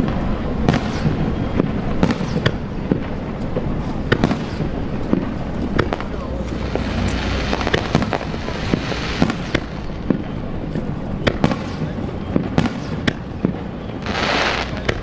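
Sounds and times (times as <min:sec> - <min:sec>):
fireworks bangs and crackles: 0:00.0 - 0:15.0
low rumble of bursting shells: 0:00.0 - 0:15.0.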